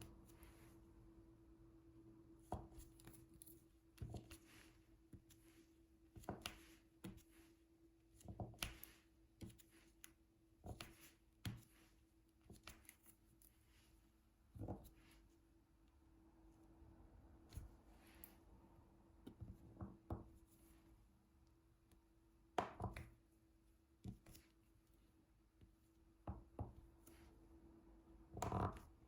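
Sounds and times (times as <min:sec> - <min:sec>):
faint steady hum: 0:00.0 - 0:08.1.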